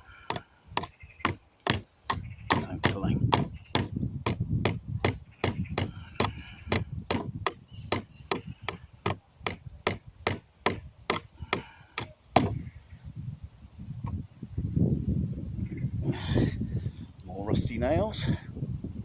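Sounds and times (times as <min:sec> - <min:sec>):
hammer striking nails in wood: 0:00.0 - 0:12.6.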